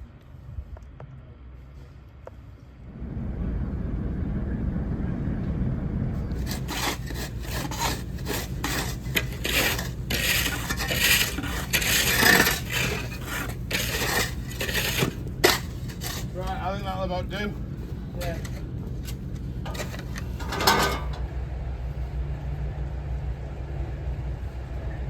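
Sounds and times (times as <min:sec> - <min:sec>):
steady low rumble: 0:00.0 - 0:25.0
tool scraping snow: 0:06.3 - 0:16.7, 0:18.2 - 0:21.2.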